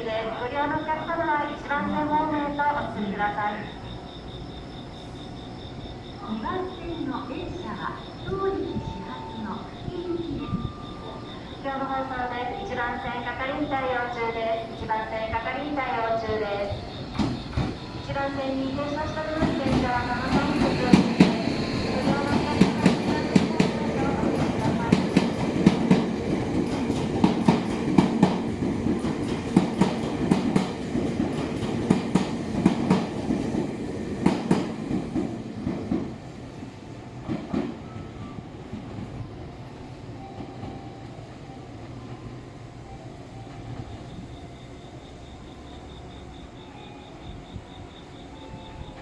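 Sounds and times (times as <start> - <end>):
low train rumble: 0.0 - 49.0
train wheels clacking: 14.7 - 36.2, 37.2 - 39.2.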